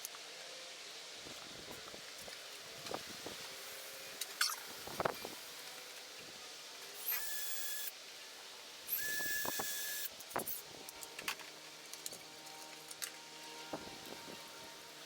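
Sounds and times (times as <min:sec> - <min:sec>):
hissing spray with whistle: 0:08.9 - 0:10.1.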